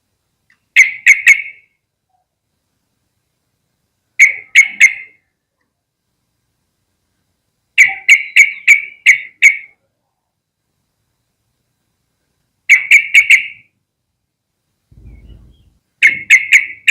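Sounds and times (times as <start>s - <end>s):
bird calling short sharp notes: 15.0s - 16.8s.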